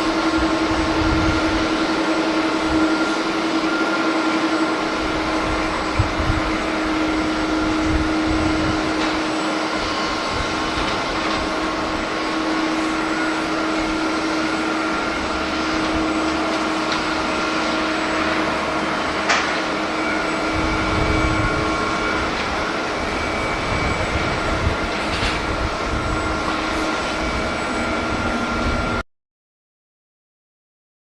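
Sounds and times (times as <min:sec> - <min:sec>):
wind buffeting microphone: 0:00.0 - 0:03.1, 0:04.9 - 0:14.3, 0:20.3 - 0:29.0
jet engines whining hum: 0:00.0 - 0:29.0.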